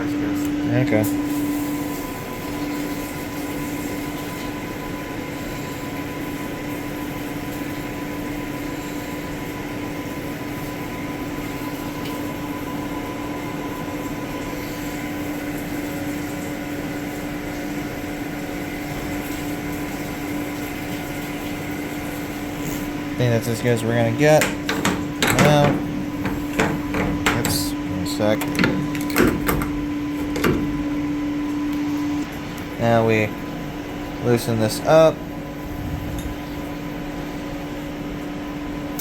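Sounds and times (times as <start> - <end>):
machine humming: 22.3 - 35.8.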